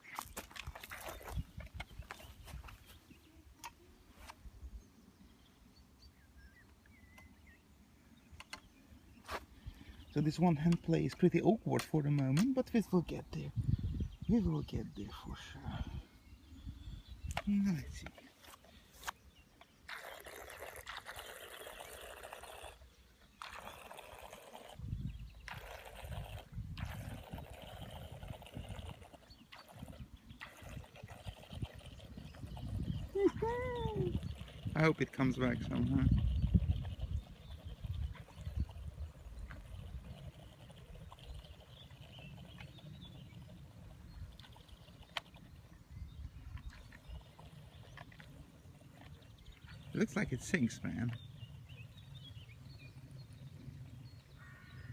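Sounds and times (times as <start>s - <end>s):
boat propellers churning water: 19.8s - 52.1s.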